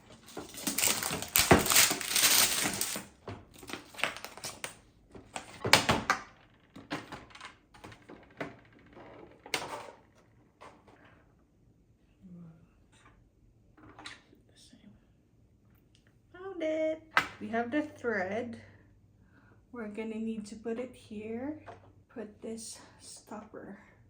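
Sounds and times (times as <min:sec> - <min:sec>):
thread spools clicking and knocking: 0:00.0 - 0:04.7
rustling of small items: 0:00.0 - 0:06.1.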